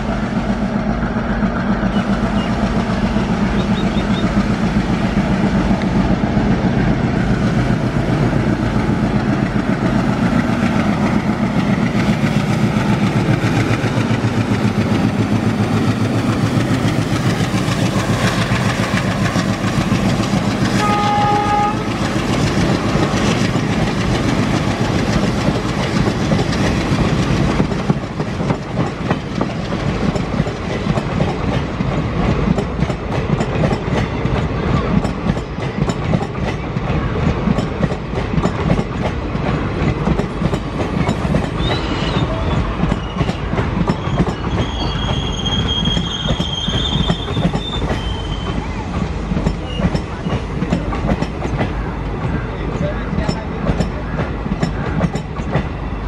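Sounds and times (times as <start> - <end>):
wheels clacking over rail joints: 3.8 - 56.0
train horn blast: 20.7 - 22.0
high wheel squeal: 41.5 - 48.8.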